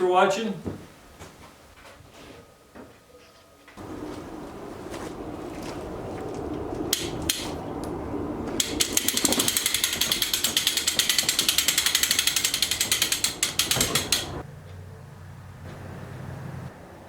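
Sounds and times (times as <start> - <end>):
ratchet clicking rapidly: 8.6 - 14.4
single ratchet clicks: 8.6 - 14.4.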